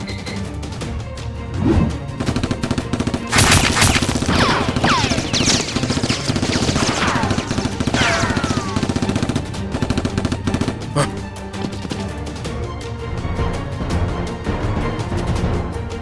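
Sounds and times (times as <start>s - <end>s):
action music: 0.0s - 16.0s
rapid gunfire effects: 1.9s - 11.0s.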